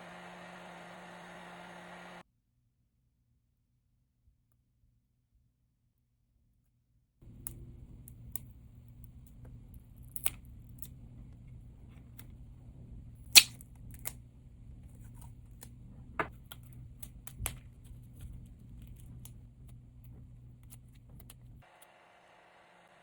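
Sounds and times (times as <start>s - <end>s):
low steady hum: 0.0s - 2.2s, 7.2s - 23.0s.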